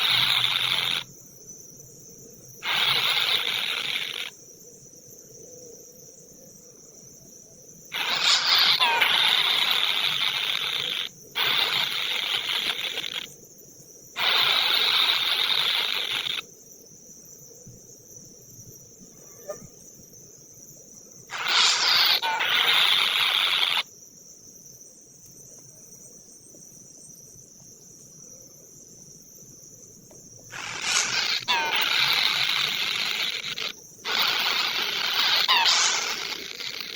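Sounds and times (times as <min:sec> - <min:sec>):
insects buzzing in bursts: 0:00.0 - 0:05.6, 0:07.0 - 0:19.1, 0:19.8 - 0:24.8, 0:27.4 - 0:36.9
high-pitched insect drone: 0:00.0 - 0:36.9.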